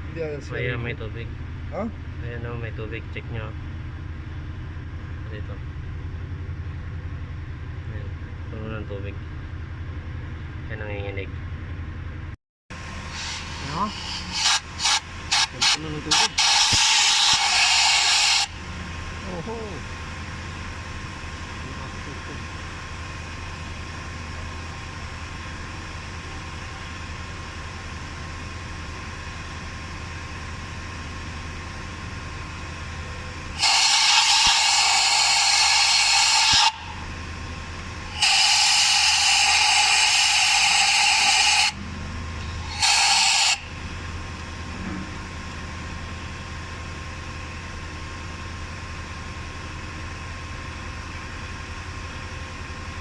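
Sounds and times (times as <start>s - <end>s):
compressed air blasts: 12.9s - 18.6s, 33.5s - 37.1s, 38.0s - 41.8s, 42.4s - 43.8s.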